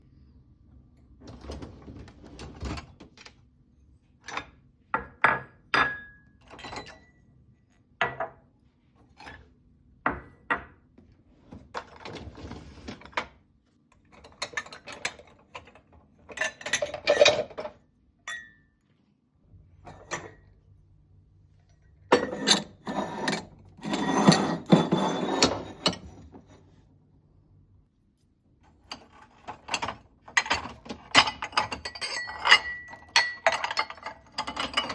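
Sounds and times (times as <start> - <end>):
clattering and rustling: 11.4 - 13.4, 14.1 - 17.8, 22.1 - 26.7, 28.8 - 34.9.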